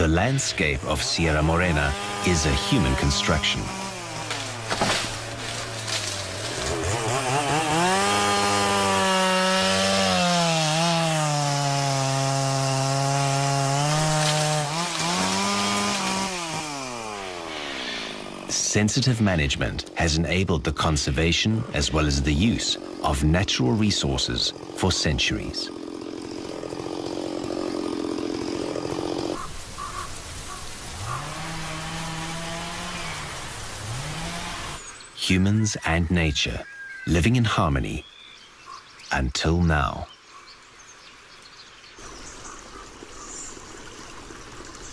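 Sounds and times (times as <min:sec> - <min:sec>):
chainsaw cutting wood: 0:00.0 - 0:18.6, 0:21.8 - 0:30.1, 0:30.7 - 0:34.9.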